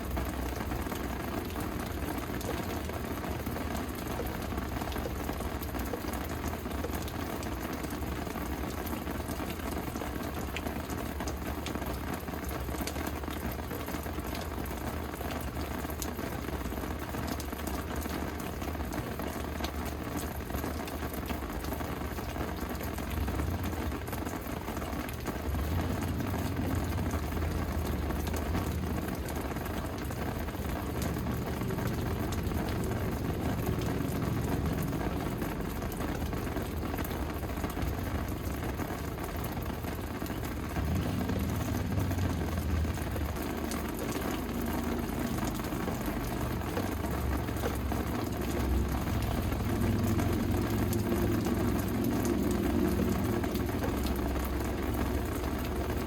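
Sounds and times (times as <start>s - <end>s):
rain pattering on surfaces: 0.0s - 56.0s
low rumble: 25.3s - 56.0s.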